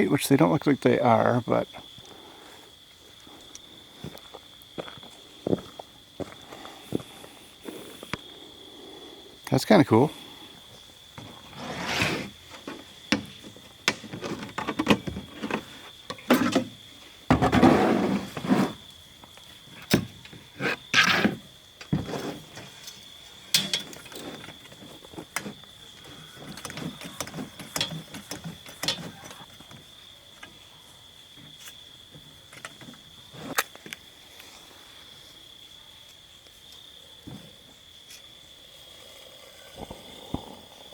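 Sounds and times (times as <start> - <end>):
crickets chirring: 0.0 - 40.9
knocks clicks and rustles: 12.5 - 17.8, 21.0 - 29.9.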